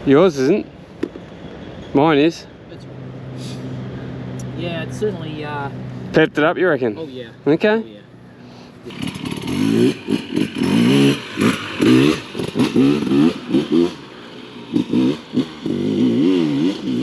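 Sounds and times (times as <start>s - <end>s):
two-stroke engine revving: 8.8s - 17.0s.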